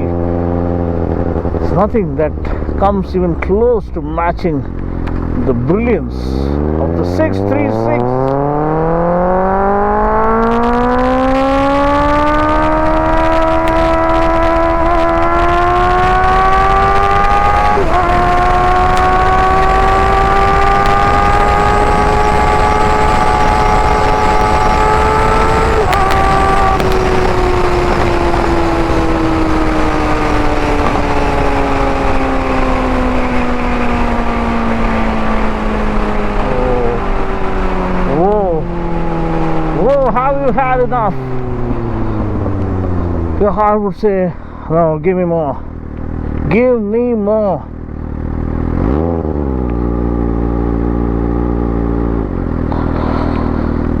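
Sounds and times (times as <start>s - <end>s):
loud motorcycle engine revving: 0.0s - 43.8s, 45.5s - 54.0s.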